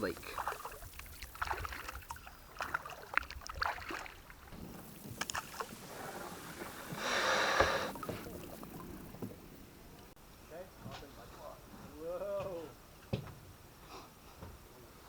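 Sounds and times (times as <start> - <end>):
kayak paddle splashing: 0.0 - 10.1
water dripping from paddle: 0.0 - 10.1.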